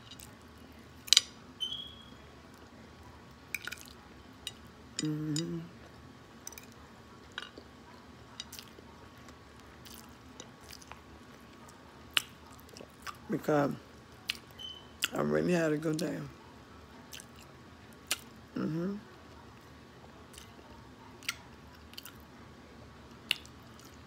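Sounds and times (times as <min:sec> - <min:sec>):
person chewing food: 0:03.5 - 0:13.3, 0:14.2 - 0:15.1, 0:17.1 - 0:18.3, 0:20.3 - 0:20.6, 0:21.2 - 0:22.3, 0:23.1 - 0:24.0
person humming: 0:05.0 - 0:05.8, 0:18.6 - 0:19.0.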